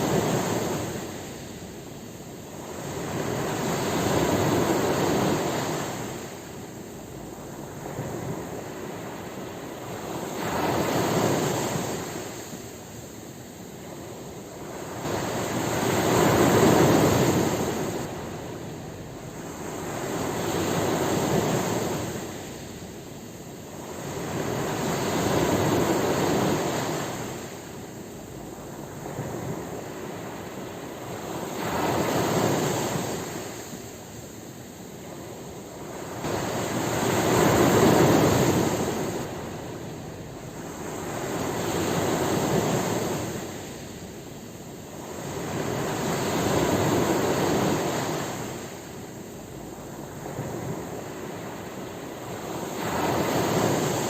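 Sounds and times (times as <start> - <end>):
ocean waves breaking: 0.0 - 54.0.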